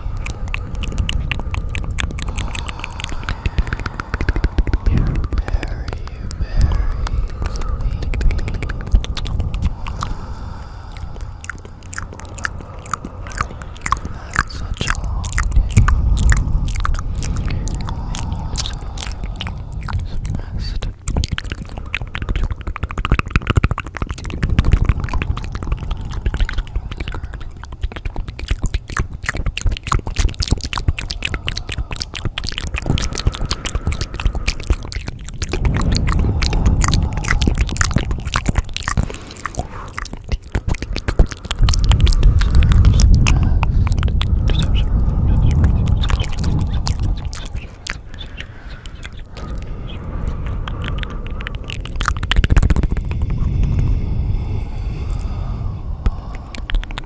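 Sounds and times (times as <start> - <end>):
crisp clicking and crunching: 0.0 - 57.0
low rumble: 0.0 - 57.0.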